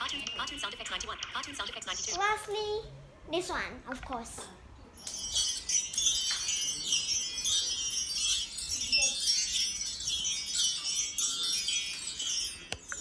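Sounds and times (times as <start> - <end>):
wind chime tinkling: 5.0 - 13.0.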